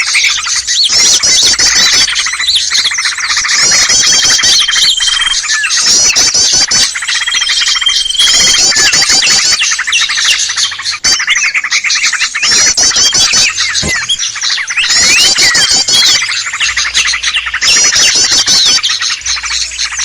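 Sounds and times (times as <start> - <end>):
small birds chirping: 0.0 - 20.0
held whistled bird note: 11.0 - 18.8.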